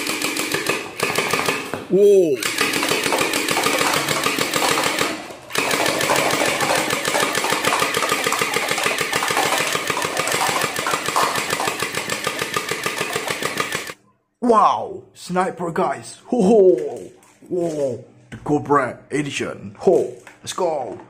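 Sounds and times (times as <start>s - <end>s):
toy machine gun rattling: 0.0s - 1.7s, 2.4s - 14.0s.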